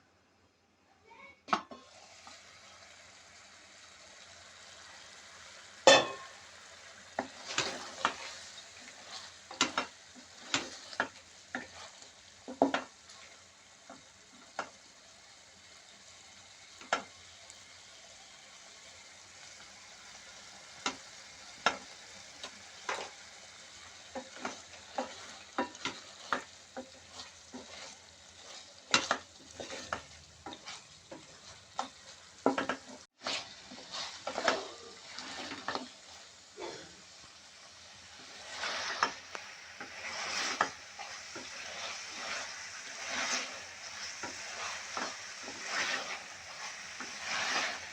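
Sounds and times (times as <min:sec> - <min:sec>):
food sizzling in a pan: 0:01.0 - 0:47.9
spoon scraping and knocking pan: 0:05.8 - 0:14.8, 0:16.8 - 0:17.1, 0:20.7 - 0:36.4, 0:38.0 - 0:47.9.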